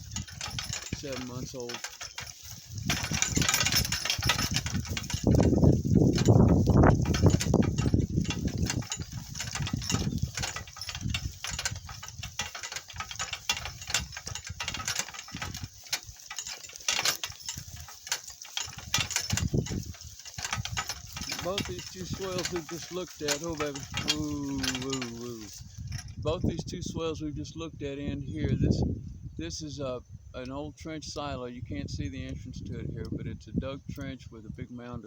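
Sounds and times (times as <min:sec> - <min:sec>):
cart rattling and knocking: 0:00.0 - 0:26.5.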